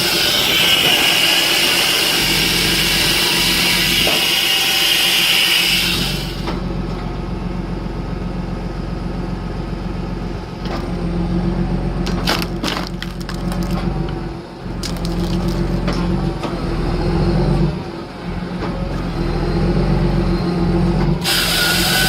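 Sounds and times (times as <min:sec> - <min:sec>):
loud hissing whine: 0:00.0 - 0:06.5, 0:21.2 - 0:22.0
tractor diesel engine running: 0:00.0 - 0:22.0.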